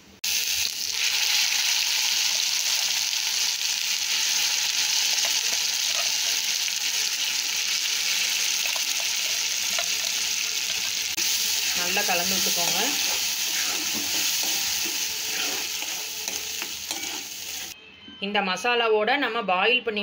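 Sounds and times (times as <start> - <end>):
paste sizzling in hot fat: 0.3 - 17.8
spatula stirring: 8.1 - 17.8.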